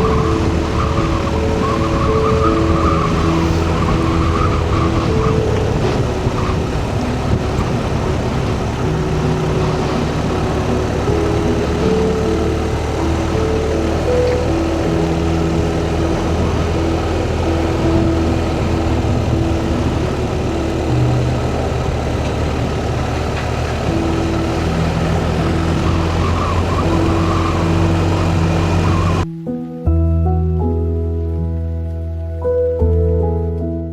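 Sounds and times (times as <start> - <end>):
motorcycle engine hum: 0.0 - 29.3
wind noise: 0.0 - 29.3.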